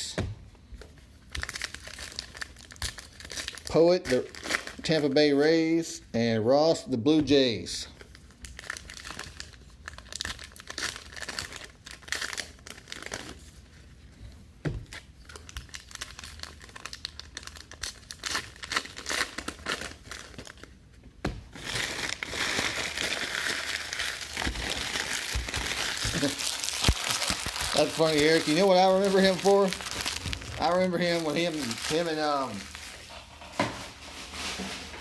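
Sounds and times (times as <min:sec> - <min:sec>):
packaging crinkling and tearing: 0:01.3 - 0:05.3, 0:08.0 - 0:13.7, 0:14.9 - 0:20.7, 0:21.5 - 0:35.0.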